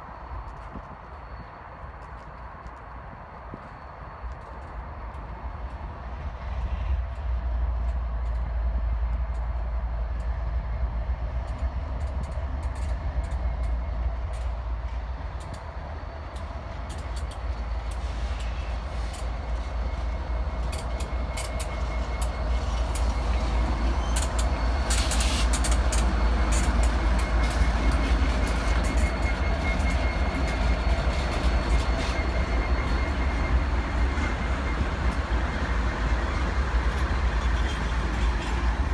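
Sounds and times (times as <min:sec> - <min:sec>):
train rumbling on rails: 0:00.0 - 0:38.9
wheels clicking over track: 0:20.7 - 0:33.2.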